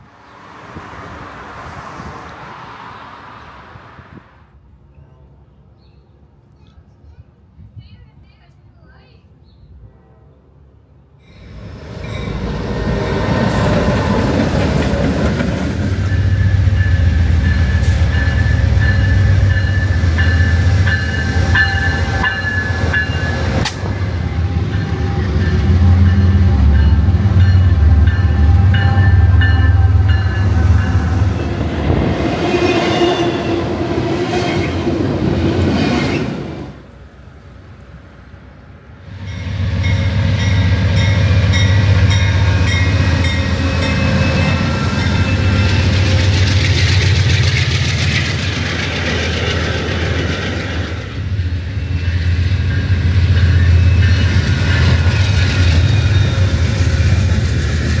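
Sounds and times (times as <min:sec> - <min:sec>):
rolling rail cars: 0:00.0 - 0:07.7, 0:09.0 - 0:58.0
locomotive rumble: 0:11.3 - 0:58.0
wheels squealing: 0:41.2 - 0:50.8.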